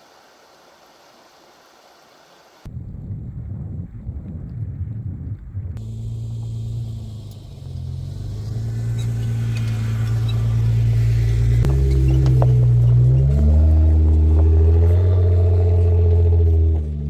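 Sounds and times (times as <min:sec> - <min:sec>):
wind rumble on microphone: 0:02.7 - 0:17.0
vehicle engine running: 0:05.8 - 0:17.0.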